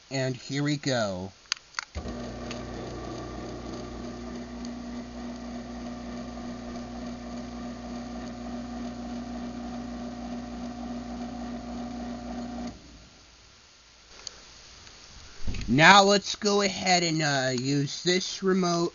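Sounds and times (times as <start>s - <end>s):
garage door opener motor humming: 2.0s - 13.1s.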